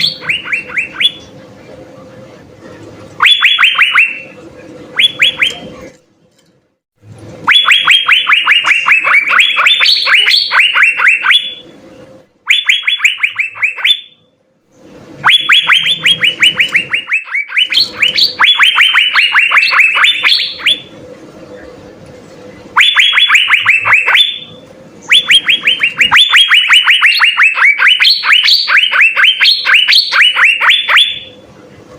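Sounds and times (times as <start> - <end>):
birds singing fast high notes: 0.0 - 1.3, 7.5 - 11.6, 15.2 - 20.9, 22.8 - 31.4.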